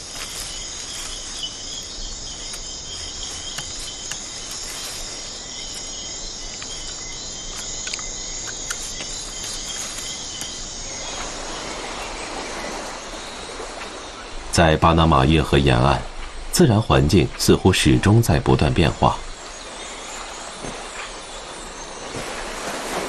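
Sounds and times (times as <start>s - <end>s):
broad rushing noise: 0.0s - 7.7s
insects trilling: 0.0s - 23.0s.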